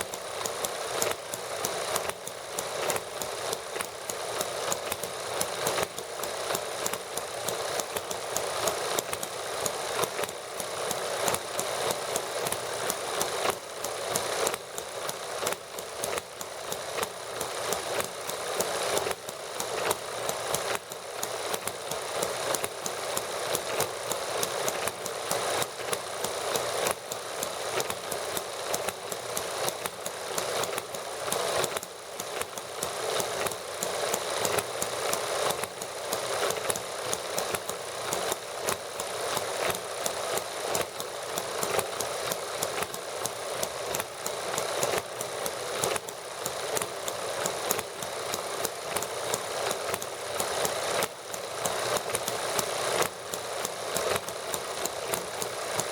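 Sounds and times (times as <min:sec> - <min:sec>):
small model engines rattling: 0:00.0 - 0:55.9.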